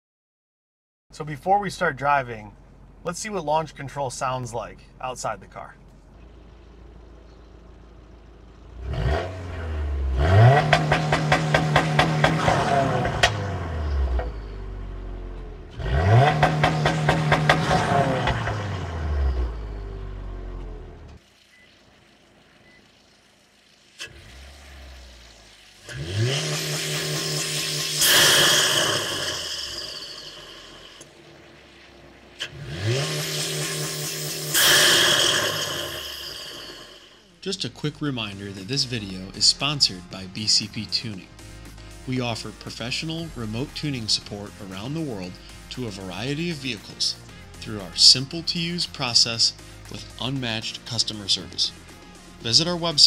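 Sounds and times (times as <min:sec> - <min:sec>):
car engine revving to limiter: 0:06.2 - 0:53.0
high whine: 0:25.9 - 0:48.8.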